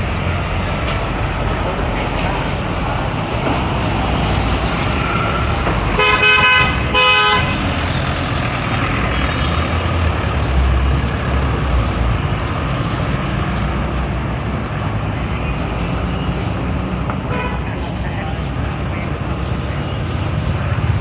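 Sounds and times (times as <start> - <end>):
city traffic: 0.0 - 21.0
truck engines rumbling: 0.0 - 21.0
vehicle horn honking: 6.0 - 7.7, 17.3 - 17.7.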